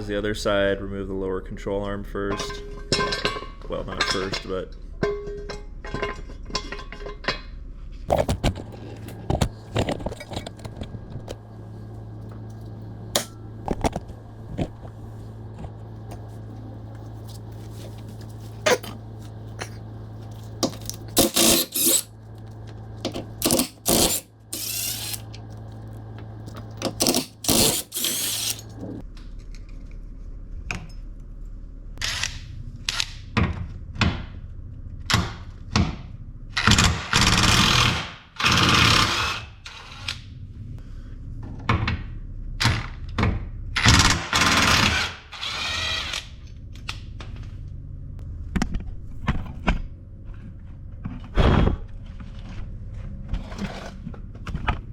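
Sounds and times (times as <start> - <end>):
power tool bursts: 21.2 - 22.1, 23.4 - 25.3, 26.9 - 28.7.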